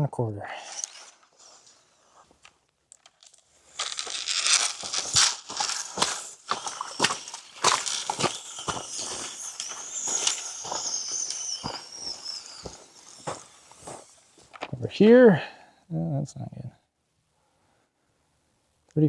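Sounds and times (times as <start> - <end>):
footsteps crunching on dry ground: 3.2 - 14.8.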